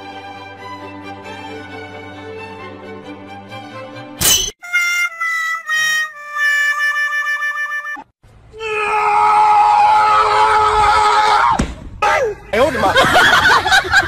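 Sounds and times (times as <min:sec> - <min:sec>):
background music with held notes: 0:00.0 - 0:04.2.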